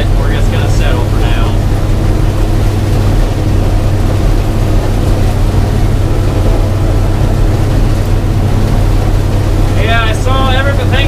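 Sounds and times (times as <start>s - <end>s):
combine harvester engine drone: 0.0s - 11.0s.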